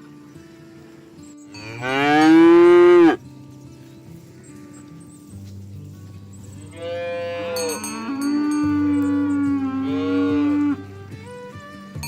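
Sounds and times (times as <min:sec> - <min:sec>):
cow mooing: 0:01.6 - 0:03.2, 0:06.7 - 0:10.9.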